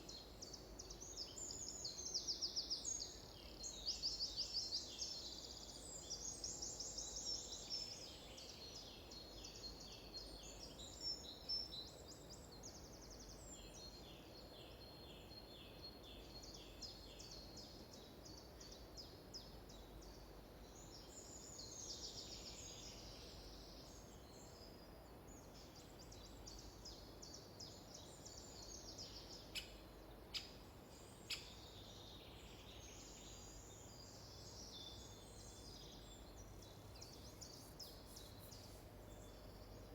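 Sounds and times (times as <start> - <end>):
background hiss: 0.0 - 39.9
songbirds singing: 0.0 - 39.9.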